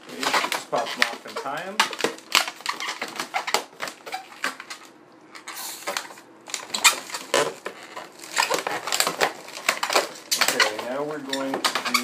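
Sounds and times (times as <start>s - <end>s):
balloons squeaking and rubbing: 0.0s - 4.8s, 5.4s - 12.0s
short hiss: 5.6s - 5.9s.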